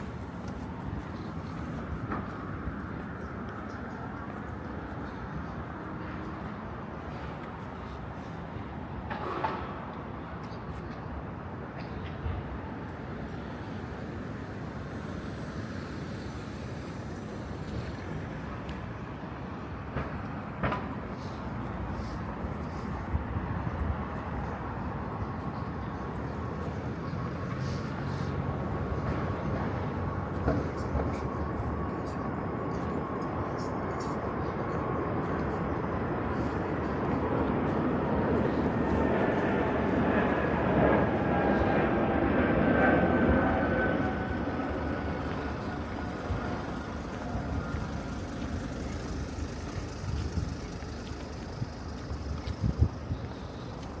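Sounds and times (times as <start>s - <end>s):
distant traffic rumble: 0.0s - 54.0s
distant vehicle engine: 35.2s - 54.0s.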